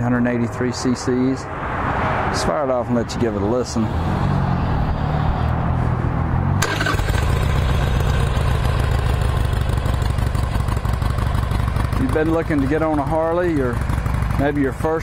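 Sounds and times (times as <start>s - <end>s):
engine starter cranking: 6.6s - 8.0s
motorcycle engine idling: 6.6s - 15.0s.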